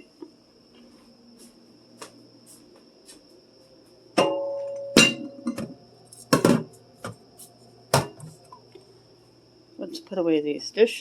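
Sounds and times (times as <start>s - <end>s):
ringing glass clink: 4.2s - 5.6s
dishes knocking and clattering: 4.2s - 7.2s, 7.9s - 8.4s.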